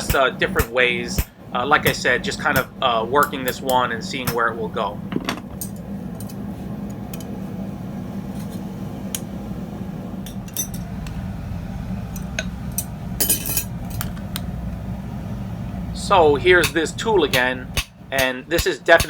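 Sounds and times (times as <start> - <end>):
steady low hum: 0.0 - 19.0
metal tools clinking: 5.2 - 6.4, 10.3 - 10.9, 12.2 - 14.1.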